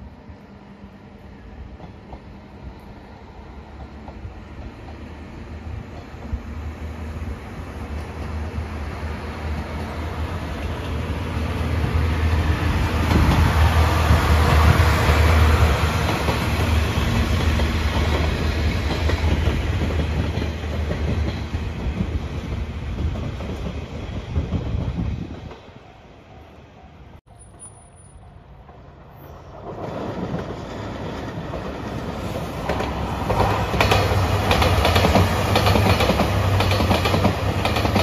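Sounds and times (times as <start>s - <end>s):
train low rumble: 0.0s - 38.0s
wheels clacking over rail joints: 29.6s - 38.0s.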